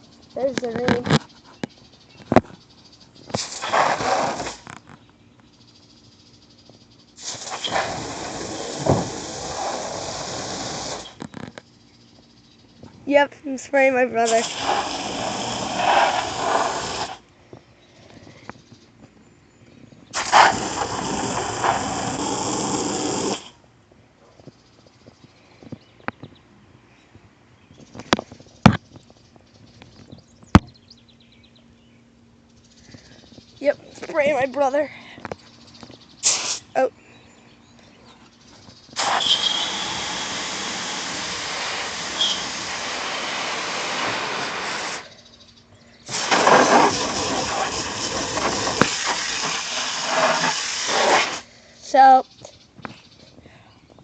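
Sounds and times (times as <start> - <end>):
hose nozzle spraying water: 3.4 - 4.6, 7.2 - 11.2, 14.2 - 17.2, 20.2 - 23.5, 36.2 - 36.7, 39.0 - 45.1, 46.1 - 51.4.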